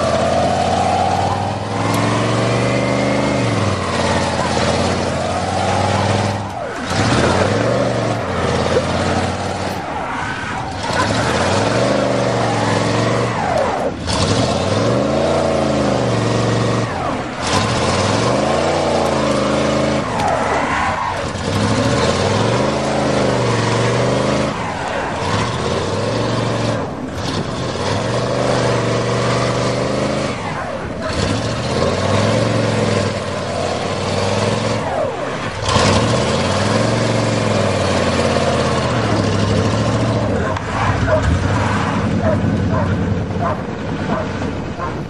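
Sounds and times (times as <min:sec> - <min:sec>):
engines revving at high throttle: 0:00.0 - 0:45.0.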